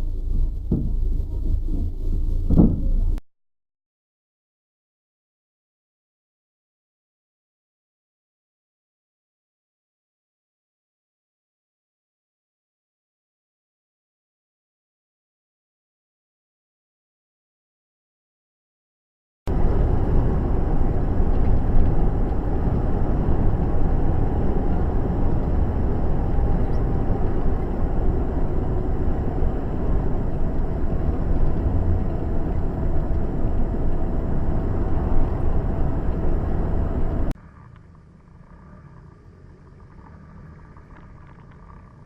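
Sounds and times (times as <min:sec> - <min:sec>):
car road and engine noise: 0:00.0 - 0:03.2, 0:19.5 - 0:42.0
quiet drone: 0:00.0 - 0:03.2, 0:19.5 - 0:42.0.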